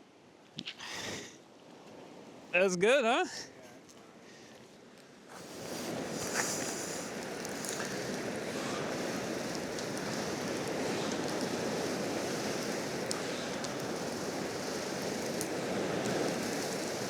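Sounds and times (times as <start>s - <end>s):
steady outdoor noise: 0.0s - 17.0s
faint ticks: 6.2s - 17.0s.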